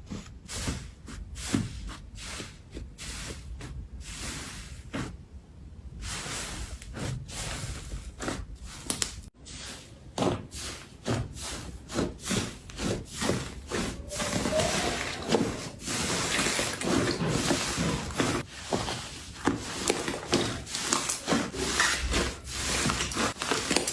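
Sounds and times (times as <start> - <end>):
slime squelching by hand: 10.6 - 23.9.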